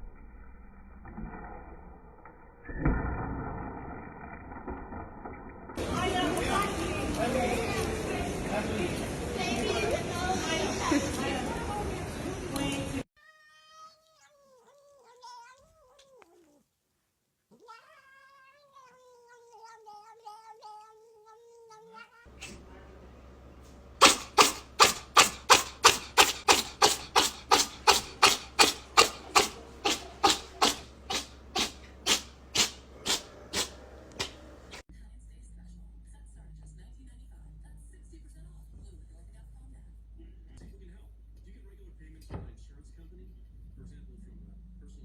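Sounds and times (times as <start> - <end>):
cat yowling: 13.2 - 16.6, 17.5 - 22.6, 25.8 - 34.8
rapid loud sharp sounds: 24.0 - 34.8.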